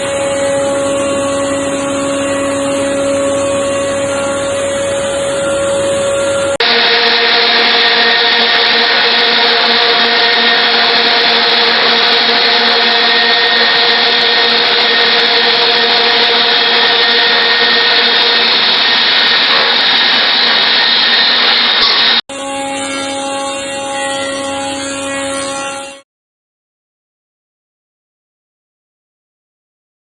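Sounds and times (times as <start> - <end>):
quieter machine hum: 0.0 - 23.9
machine cutters shaving wood: 0.0 - 26.0
machine hum: 0.0 - 26.0.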